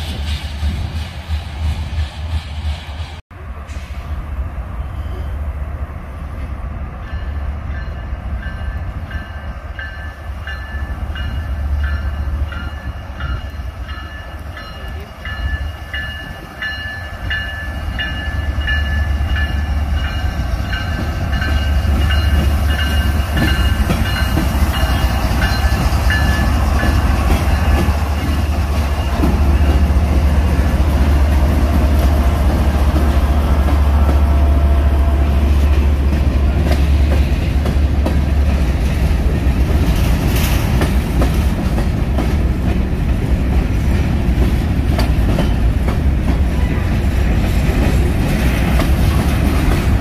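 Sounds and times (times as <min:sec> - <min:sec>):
train rumbling past: 0:00.0 - 0:50.0
railroad bell ringing: 0:07.0 - 0:36.5.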